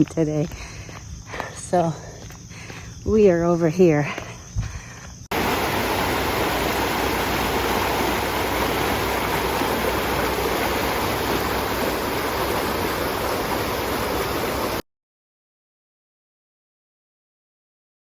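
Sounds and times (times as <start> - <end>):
rushing water: 5.3 - 14.8.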